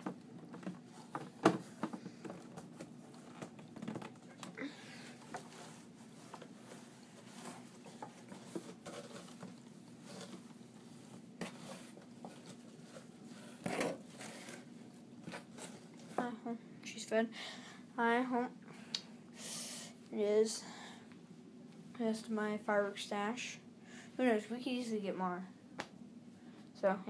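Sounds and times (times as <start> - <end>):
faint steady hum: 0.0 - 27.0
scratchy rustling: 5.0 - 14.7.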